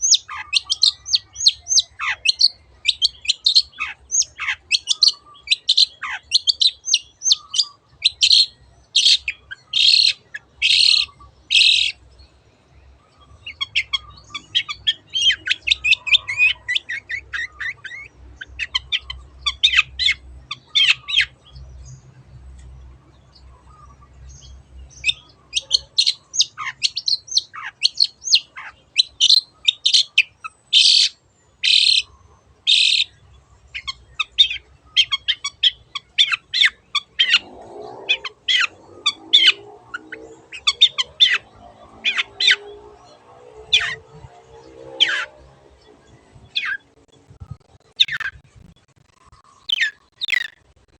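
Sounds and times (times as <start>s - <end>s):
bird scratchy chattering: 47.9s - 50.6s.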